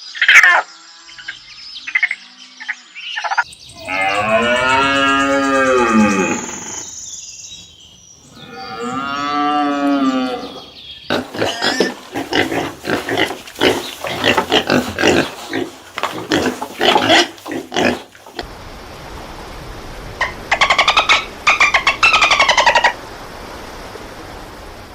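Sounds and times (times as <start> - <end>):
farm animal drawn-out cries: 3.8 - 6.8, 8.4 - 18.4.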